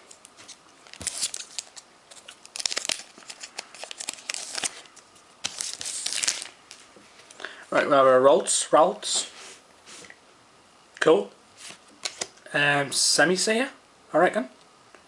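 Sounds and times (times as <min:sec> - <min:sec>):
foil wrapper tearing and crinkling: 0:00.9 - 0:06.8.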